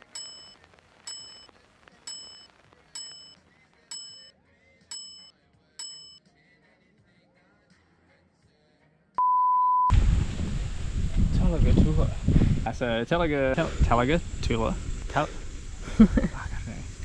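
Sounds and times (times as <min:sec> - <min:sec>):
high bell-like ding: 0:00.0 - 0:01.5, 0:02.1 - 0:04.3, 0:04.9 - 0:06.2.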